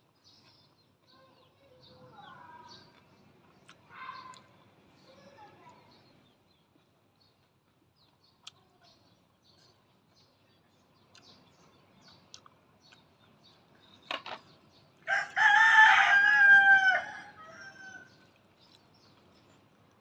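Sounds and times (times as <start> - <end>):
rooster crowing: 15.1 - 18.2.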